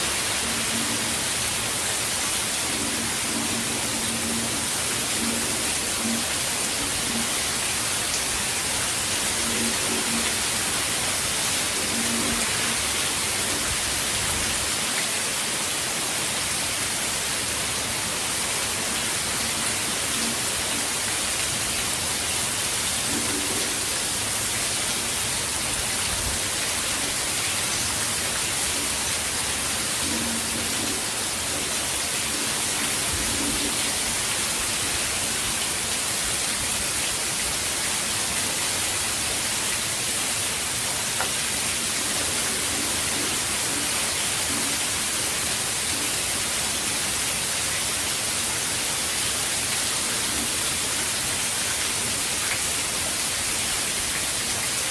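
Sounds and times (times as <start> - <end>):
heavy rain hissing: 0.0 - 54.9.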